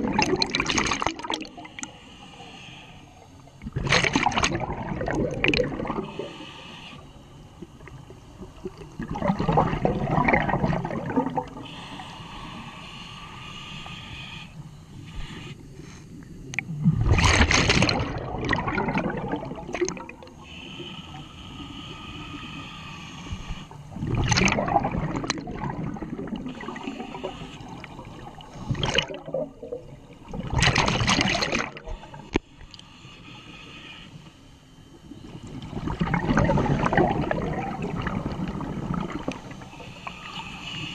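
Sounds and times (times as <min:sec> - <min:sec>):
gurgling exhaled bubbles: 0:00.0 - 0:01.8, 0:03.6 - 0:06.4, 0:07.7 - 0:11.8, 0:16.5 - 0:20.4, 0:23.9 - 0:32.4, 0:35.4 - 0:39.8
regulator hiss: 0:01.5 - 0:03.6, 0:06.0 - 0:08.8, 0:11.4 - 0:16.8, 0:20.1 - 0:24.0, 0:25.9 - 0:28.8, 0:31.8 - 0:35.9, 0:38.9 - 0:40.9.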